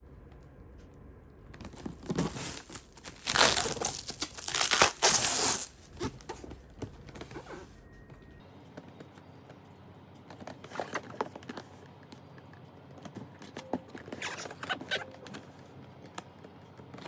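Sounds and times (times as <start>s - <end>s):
packaging crinkling and tearing: 1.6s - 6.3s.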